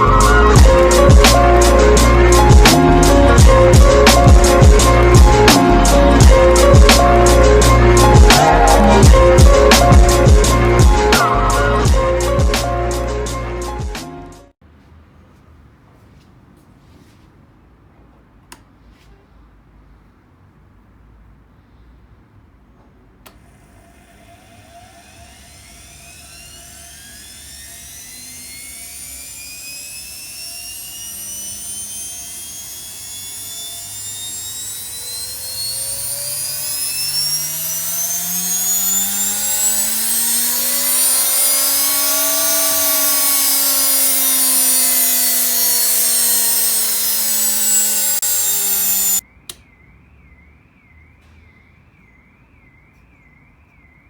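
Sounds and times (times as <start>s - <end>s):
washing machine motor whining: 0.0s - 12.6s, 23.3s - 49.2s.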